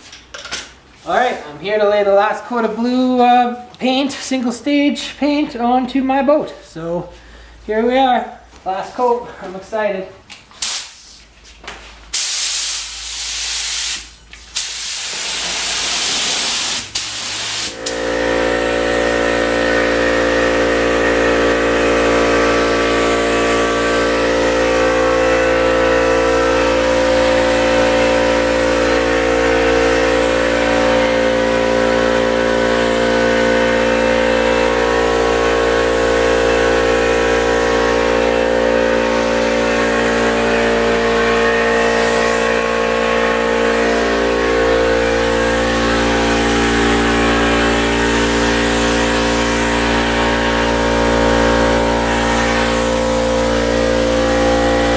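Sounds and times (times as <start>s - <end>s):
air compressor running: 6.6s - 8.5s, 10.5s - 54.9s
spray gun hissing: 12.1s - 54.9s.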